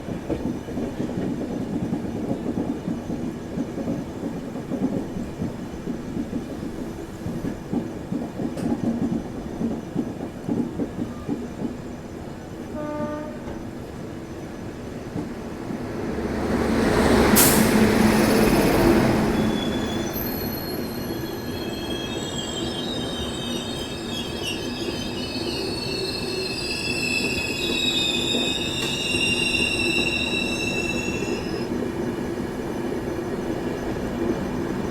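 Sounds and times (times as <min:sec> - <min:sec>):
train wheels clattering over rails: 0:00.0 - 0:14.0, 0:14.8 - 0:20.2
train rushing past: 0:00.4 - 0:34.9
wheels squealing on rails: 0:16.1 - 0:31.8.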